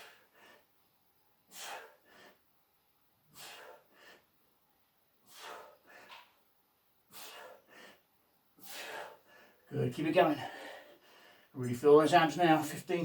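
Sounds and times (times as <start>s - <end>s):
person breathing hard: 0.0s - 2.5s, 3.2s - 4.5s, 5.2s - 6.4s, 7.0s - 9.7s, 10.4s - 11.6s.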